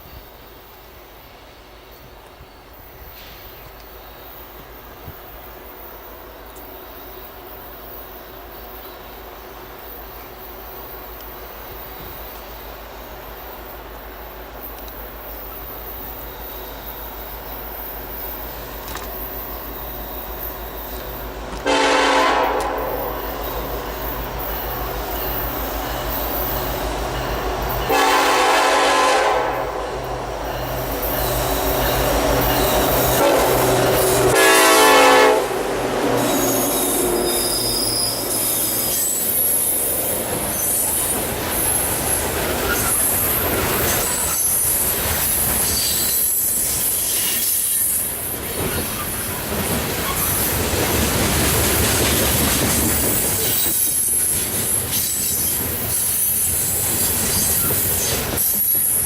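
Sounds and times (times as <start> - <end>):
diesel locomotive engine rumble: 0.0 - 59.0
steel wheels squealing: 15.3 - 21.5, 22.9 - 28.0, 30.0 - 34.4, 36.0 - 59.0
train horn blasts: 21.6 - 23.4, 27.8 - 30.3, 31.9 - 38.3.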